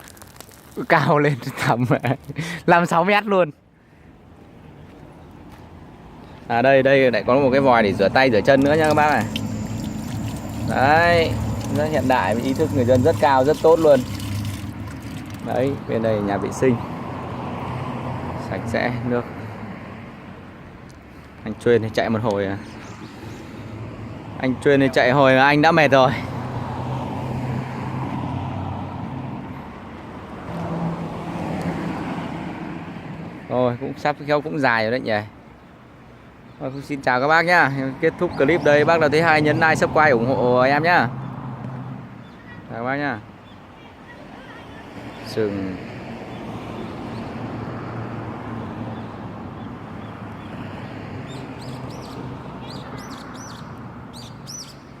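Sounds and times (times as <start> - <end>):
road noise: 0.0 - 55.0
vehicle engine hum: 7.0 - 18.3
bird chirping: 51.3 - 54.9.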